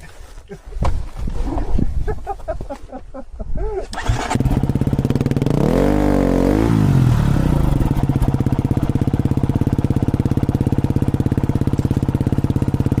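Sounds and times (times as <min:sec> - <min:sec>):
motorcycle engine revving and idling: 0:04.0 - 0:13.0.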